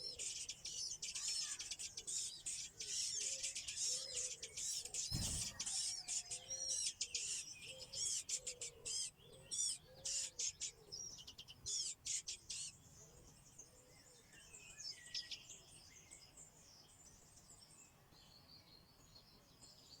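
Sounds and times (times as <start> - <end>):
birds chirping: 0.0 - 17.1.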